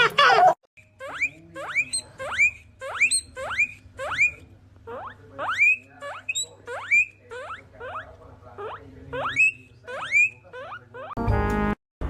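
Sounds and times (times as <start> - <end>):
guinea pig wheeking: 0.0 - 11.2.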